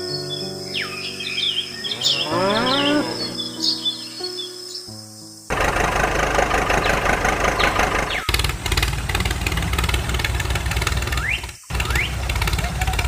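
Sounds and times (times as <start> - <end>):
engine running with low pulsing: 5.5 - 13.0.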